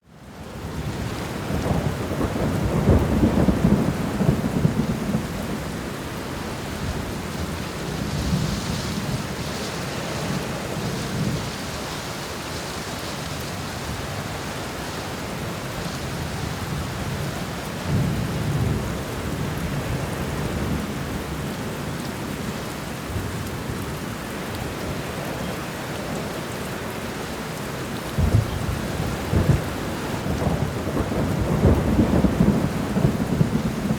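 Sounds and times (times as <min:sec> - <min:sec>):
heavy rain: 0:00.0 - 0:33.9
rolling thunder: 0:00.7 - 0:11.8, 0:28.1 - 0:33.9
sharp thunder clap: 0:28.2 - 0:33.9.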